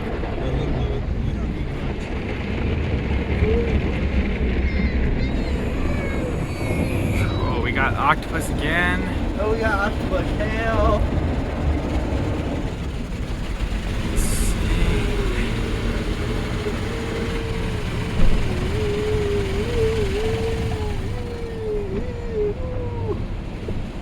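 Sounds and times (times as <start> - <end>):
car wash machinery rumble: 0.0 - 24.0
water spraying over car: 5.4 - 22.2.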